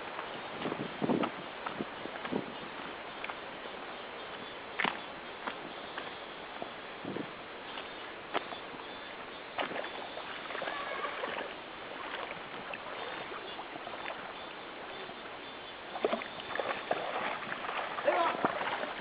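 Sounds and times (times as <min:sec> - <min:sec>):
river water running: 0:00.0 - 0:19.0
dogs splashing in water: 0:09.6 - 0:14.2, 0:16.0 - 0:19.0.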